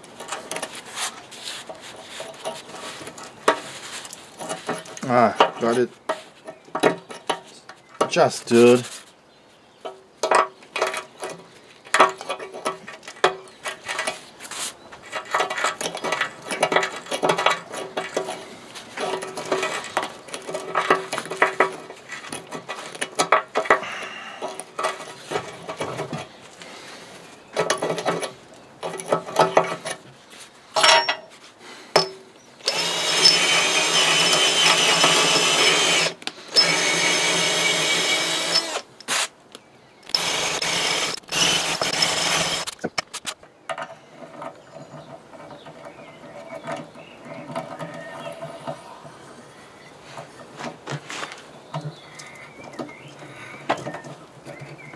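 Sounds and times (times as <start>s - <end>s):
metal tools clicking and scraping: 15.0s - 26.3s, 30.8s - 36.9s
power drill running: 32.6s - 38.9s, 40.2s - 42.7s.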